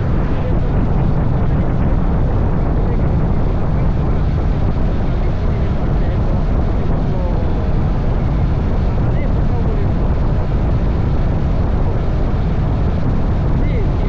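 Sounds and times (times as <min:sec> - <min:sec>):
wind rush on microphone: 0:00.0 - 0:14.0.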